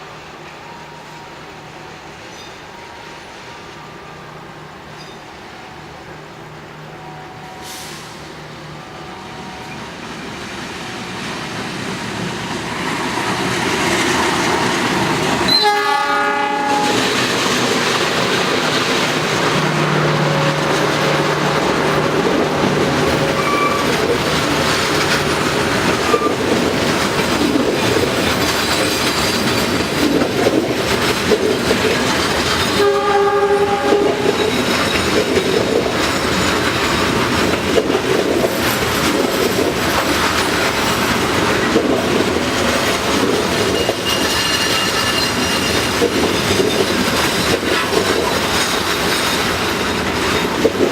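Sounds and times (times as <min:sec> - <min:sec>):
train wheels clattering on rails: 0:09.7 - 0:50.9
multi-tone train horn: 0:15.4 - 0:17.2, 0:23.2 - 0:24.0, 0:32.7 - 0:34.6.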